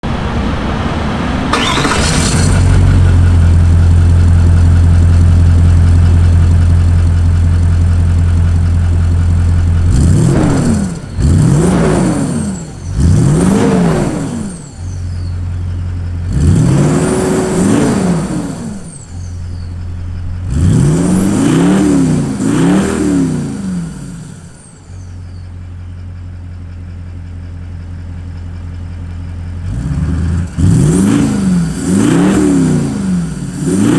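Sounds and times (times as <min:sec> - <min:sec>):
diesel engine idling and revving: 0:00.0 - 0:33.9.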